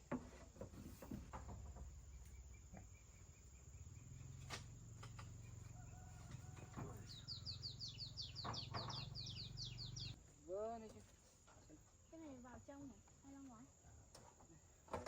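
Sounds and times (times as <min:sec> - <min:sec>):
small bird chirping: 0:02.0 - 0:10.2.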